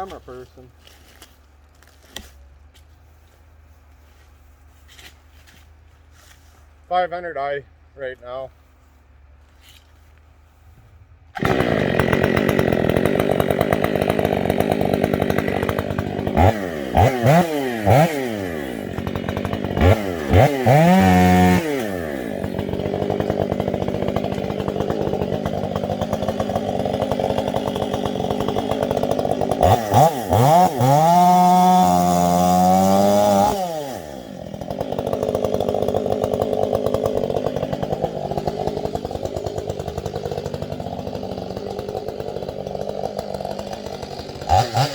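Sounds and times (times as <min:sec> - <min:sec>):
chainsaw idling and revving: 0:10.3 - 0:44.9.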